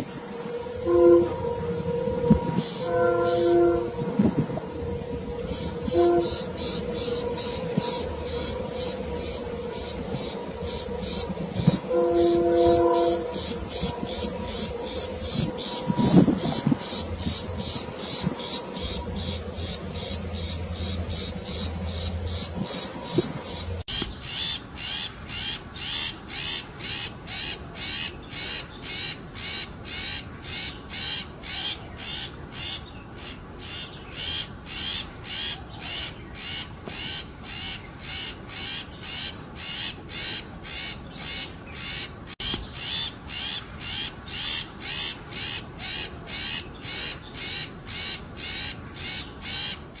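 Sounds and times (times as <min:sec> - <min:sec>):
bird giving harsh call: 0:00.8 - 0:26.1.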